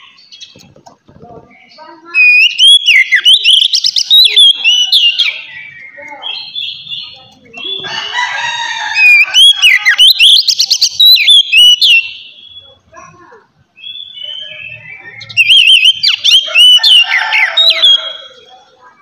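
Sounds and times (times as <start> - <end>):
bird harsh rasping phrase: 1.6 - 19.0
bird singing whistled trills: 2.1 - 7.9, 9.0 - 12.8, 13.8 - 18.5.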